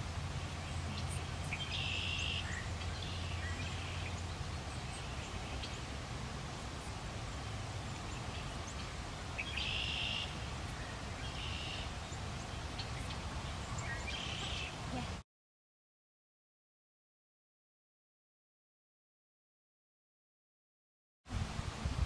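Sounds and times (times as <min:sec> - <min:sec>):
low steady hum: 0:00.0 - 0:15.2
bird buzzy calls: 0:00.6 - 0:05.9, 0:07.9 - 0:15.2.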